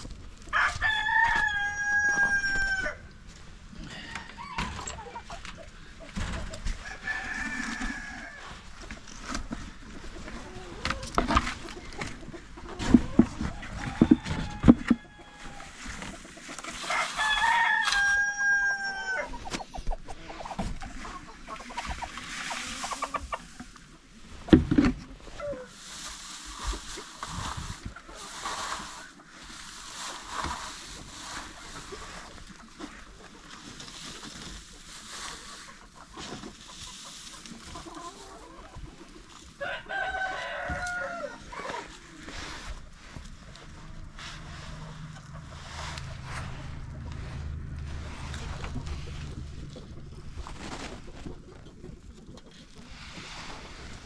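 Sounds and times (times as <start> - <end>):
rooster crowing: 0.5 - 3.1, 13.6 - 15.8, 16.8 - 19.4, 39.6 - 41.4
chickens clucking: 1.1 - 54.0.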